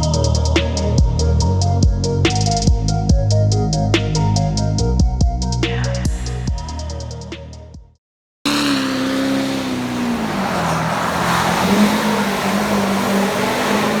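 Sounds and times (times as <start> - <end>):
motor vehicle running: 8.5 - 14.0.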